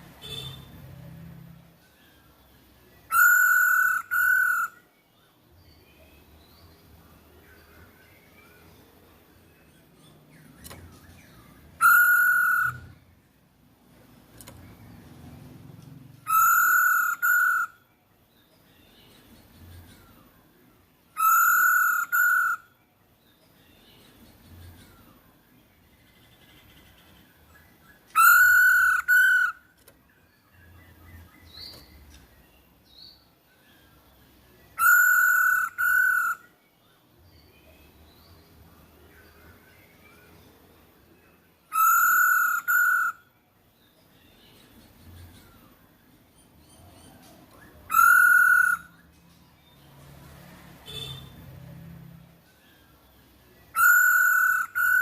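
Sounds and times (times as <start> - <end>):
faint bird chirps: 0.0 - 55.0
bird long level calls: 3.1 - 4.9, 11.7 - 13.1, 16.2 - 17.9, 21.1 - 22.8, 27.7 - 29.7, 34.7 - 36.6, 41.7 - 43.3, 47.5 - 49.1, 53.7 - 55.0
bird calling buzzy notes: 11.8 - 13.0.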